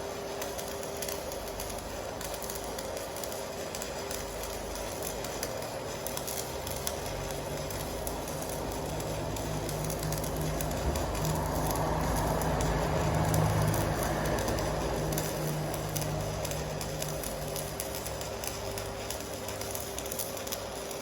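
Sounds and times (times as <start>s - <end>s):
welding arc crackling: 0.0s - 21.0s.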